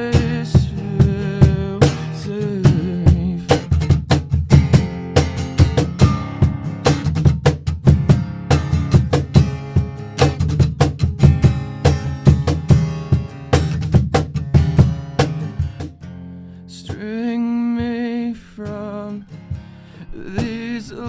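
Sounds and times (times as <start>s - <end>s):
drums keeping a steady beat: 0.0s - 16.1s, 16.9s - 21.0s
strummed acoustic guitar: 0.0s - 21.0s.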